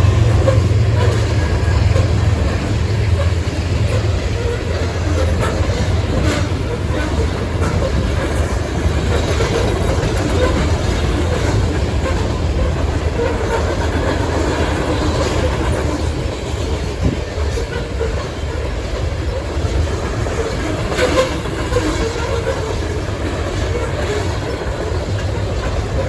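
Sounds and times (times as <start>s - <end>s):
train cars rumbling: 0.0s - 26.0s
wheels clacking over rail joints: 0.0s - 26.0s.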